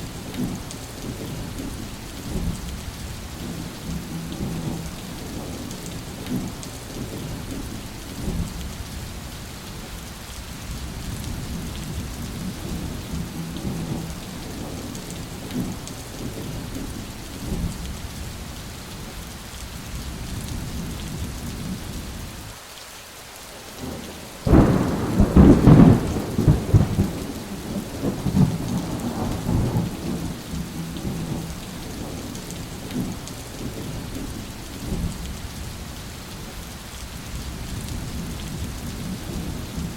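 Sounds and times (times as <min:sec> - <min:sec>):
steady rain: 0:00.0 - 0:39.9
low rolling thunder: 0:00.1 - 0:08.9, 0:10.6 - 0:18.1, 0:23.8 - 0:35.6, 0:37.3 - 0:39.9
loud thunderclap: 0:24.5 - 0:32.2.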